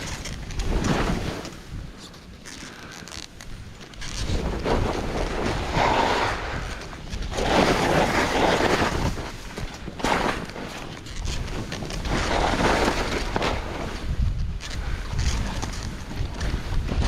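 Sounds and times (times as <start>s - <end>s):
skis sliding on snow: 0.0s - 17.0s
wind rushing over microphone: 3.5s - 17.0s.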